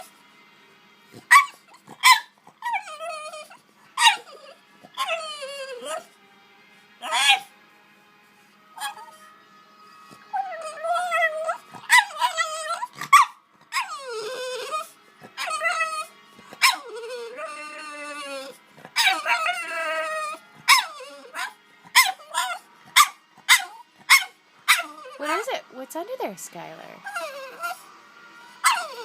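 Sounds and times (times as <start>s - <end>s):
dog whining and yipping: 1.2s - 6.2s, 7.0s - 7.5s, 8.8s - 9.3s, 10.2s - 25.6s, 27.0s - 27.9s, 28.5s - 29.0s.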